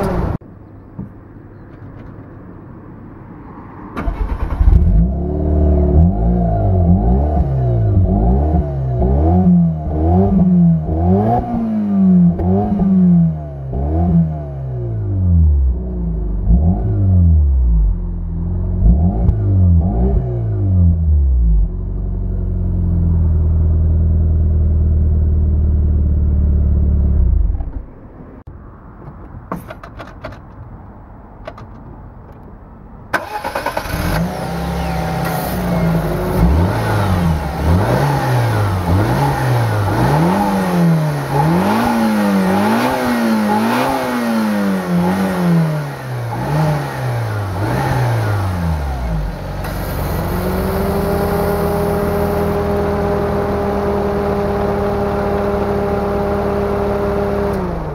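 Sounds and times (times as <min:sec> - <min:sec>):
car engine revving in blips: 0:04.0 - 0:23.6, 0:33.2 - 0:57.9.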